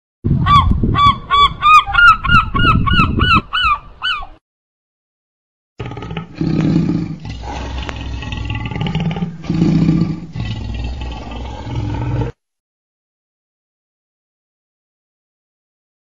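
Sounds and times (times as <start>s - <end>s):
crocodile growling: 5.8s - 12.4s.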